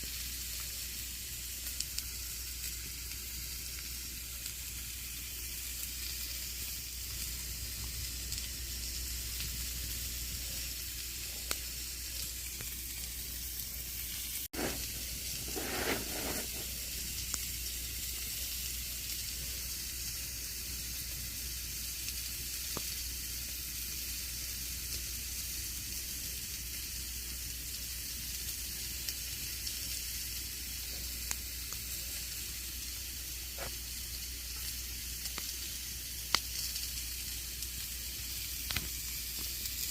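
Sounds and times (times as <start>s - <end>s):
campfire crackling: 0.0s - 39.9s
fire popping: 0.0s - 39.9s
fire rushing: 1.6s - 21.3s.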